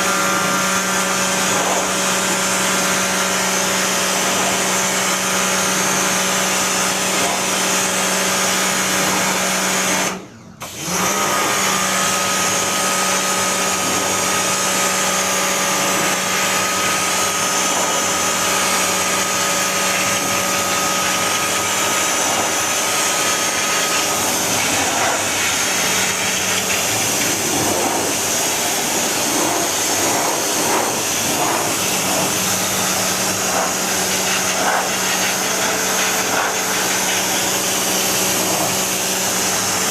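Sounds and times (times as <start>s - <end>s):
machine motor whirring and humming: 10.6s - 39.9s.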